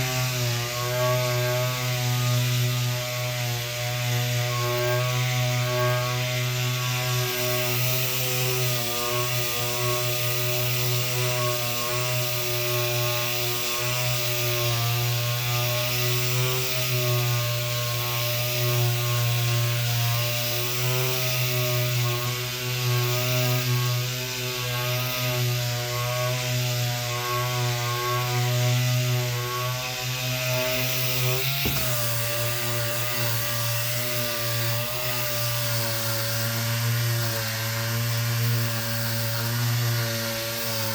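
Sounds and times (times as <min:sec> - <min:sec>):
electric sander running: 0:00.0 - 0:40.9
knock: 0:31.4 - 0:32.3.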